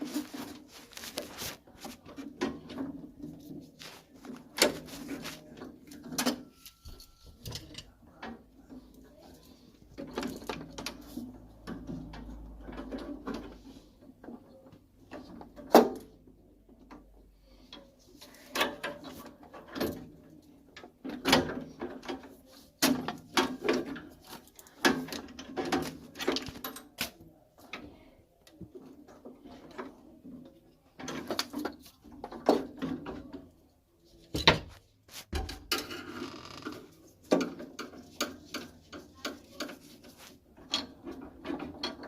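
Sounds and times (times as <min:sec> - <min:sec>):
tools and metal parts clattering: 0:00.0 - 0:14.5, 0:17.7 - 0:27.1, 0:34.3 - 0:42.0.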